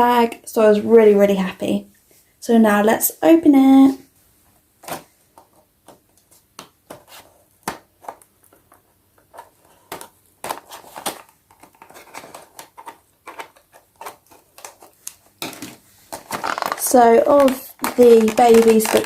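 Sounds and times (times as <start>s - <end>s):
packaging rustling: 4.8s - 19.0s.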